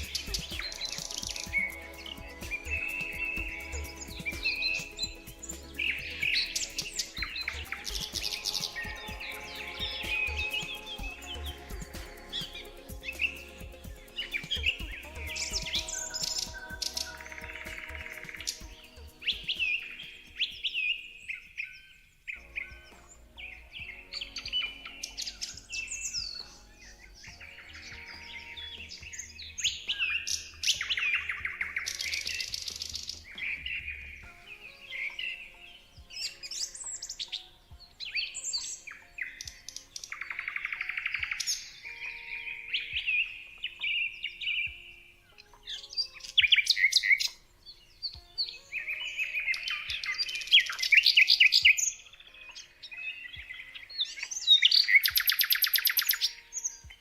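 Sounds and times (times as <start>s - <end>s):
songbirds singing and trilling: 0.0s - 57.0s.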